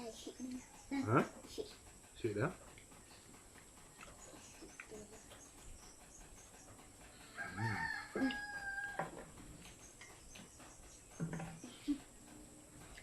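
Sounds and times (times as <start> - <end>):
rooster crowing: 7.2 - 9.3.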